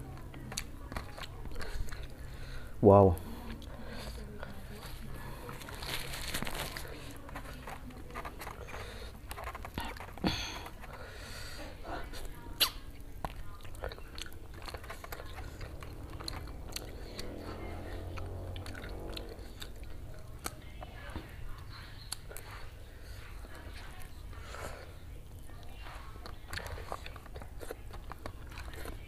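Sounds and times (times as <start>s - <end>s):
person chewing food: 0.0s - 29.0s
mouth clicks: 12.6s - 13.0s.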